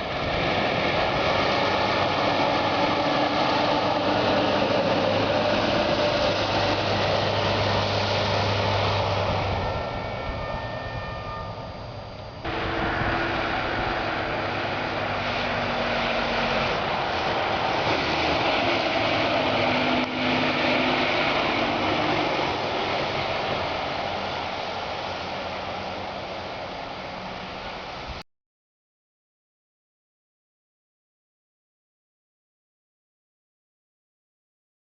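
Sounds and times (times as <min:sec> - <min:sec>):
heavy truck driving past: 0:00.0 - 0:28.2.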